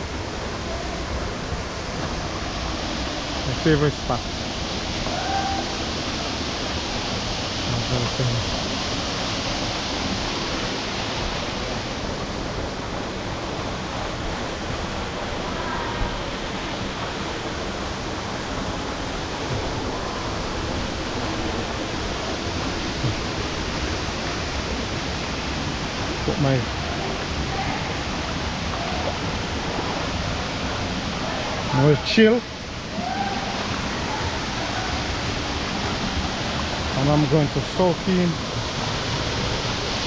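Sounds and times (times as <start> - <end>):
water rushing: 0.0 - 40.0.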